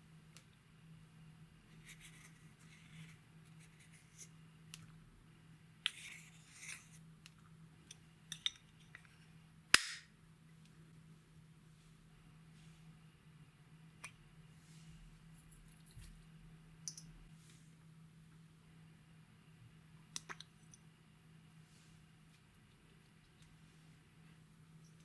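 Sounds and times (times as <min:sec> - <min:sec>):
sharp slime pop: 0:09.7 - 0:10.1.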